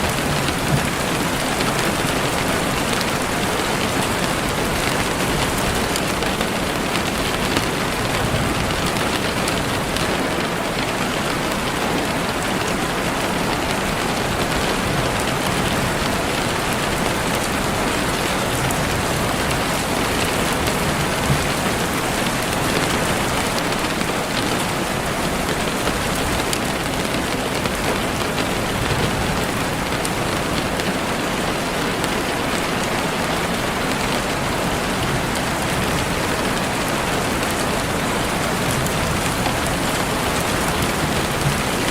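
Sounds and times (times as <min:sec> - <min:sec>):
heavy rain on leaves: 0:00.0 - 0:41.9.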